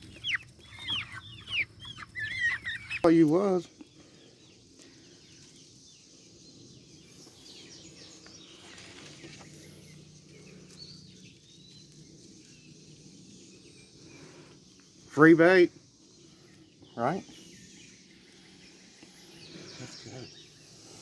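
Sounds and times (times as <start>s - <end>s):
faint bird chirps: 0.0s - 21.0s.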